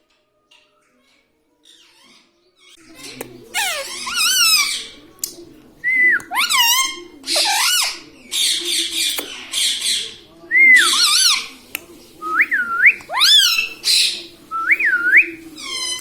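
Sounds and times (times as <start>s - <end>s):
parrot squawks: 3.5s - 5.0s, 6.3s - 10.0s, 10.8s - 11.5s, 13.1s - 14.2s.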